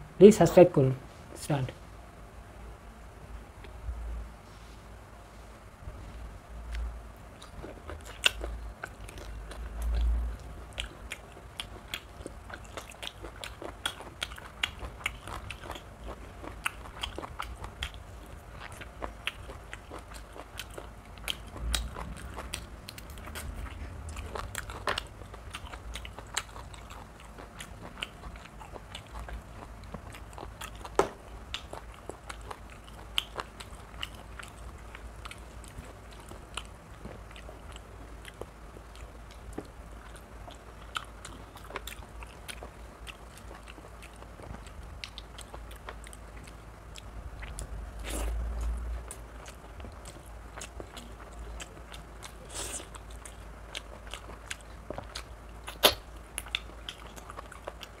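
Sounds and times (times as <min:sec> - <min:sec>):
man chewing food: 0:06.0 - 0:58.0
low rumble: 0:21.3 - 0:26.3.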